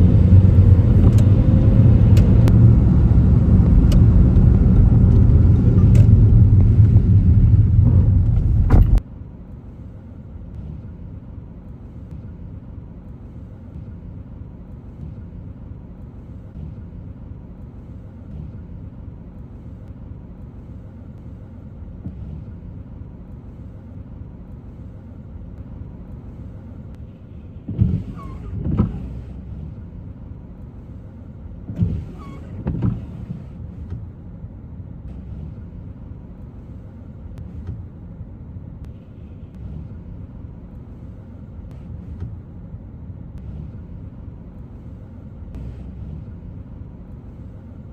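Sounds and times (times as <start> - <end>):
low hum: 0.0 - 9.0, 10.5 - 47.9
road and tyre noise: 0.0 - 47.9
short thumps: 3.6 - 9.0.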